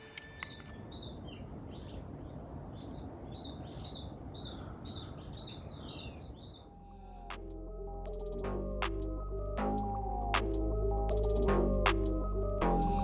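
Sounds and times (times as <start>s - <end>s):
birds chirping: 0.0s - 7.0s.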